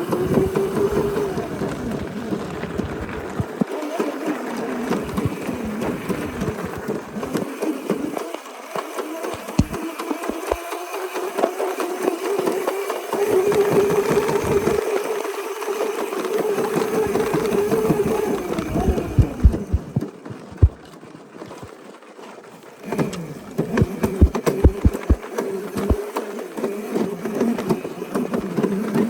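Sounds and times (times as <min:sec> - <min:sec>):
dirt bike engine running: 0:09.6 - 0:10.6, 0:18.7 - 0:20.8, 0:23.8 - 0:25.2
low knocks and bumps: 0:18.9 - 0:20.8, 0:24.2 - 0:25.2.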